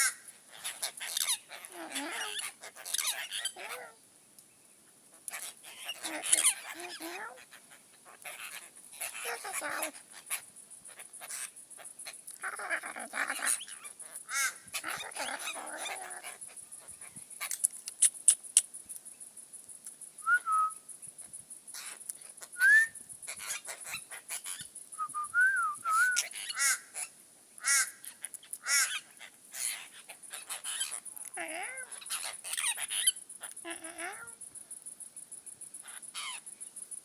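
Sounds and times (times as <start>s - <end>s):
whistled bird notes: 20.2s - 20.9s, 22.6s - 23.0s, 24.9s - 26.3s.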